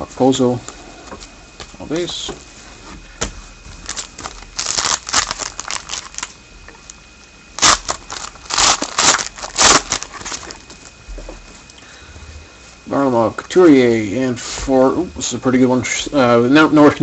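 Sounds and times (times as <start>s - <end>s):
card pack wrapper tearing and crinkling: 3.8s - 6.3s, 7.6s - 10.8s.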